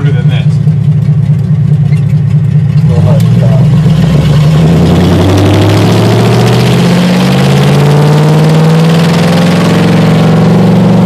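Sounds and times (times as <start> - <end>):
loud car engine accelerating: 0.0 - 11.0.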